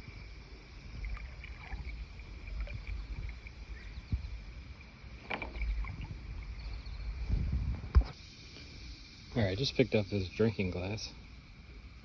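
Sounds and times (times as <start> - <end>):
water sloshing from wading: 0.0 - 7.6.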